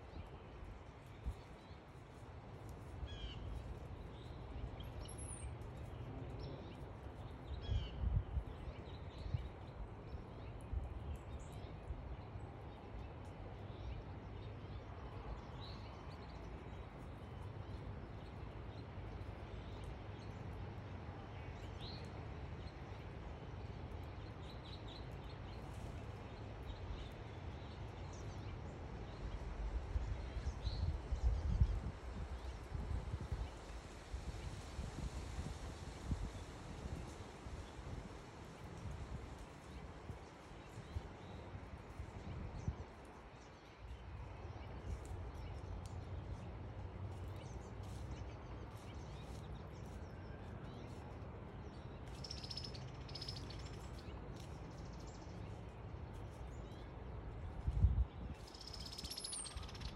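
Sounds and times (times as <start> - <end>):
songbirds chirping and whistling: 47.1 - 59.9.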